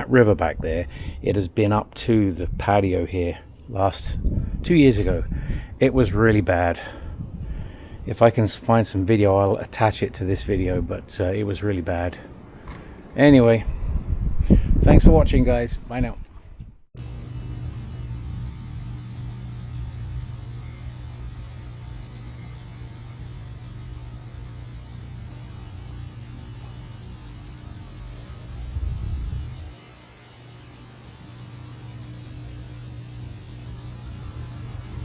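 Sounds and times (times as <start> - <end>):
steady low hum: 17.0 - 35.0.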